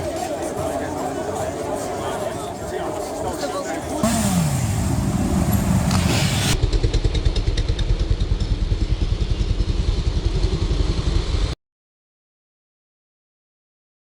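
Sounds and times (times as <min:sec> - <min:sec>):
vehicle engine passing: 0:04.0 - 0:11.5
low pulsing engine note: 0:04.0 - 0:11.6.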